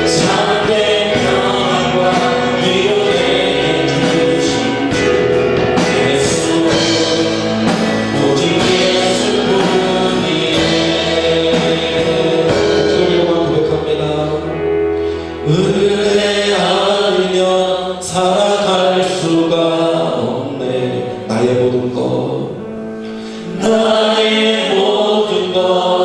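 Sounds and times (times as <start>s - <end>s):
people singing: 0.0s - 26.0s
praise worship music: 0.0s - 26.0s.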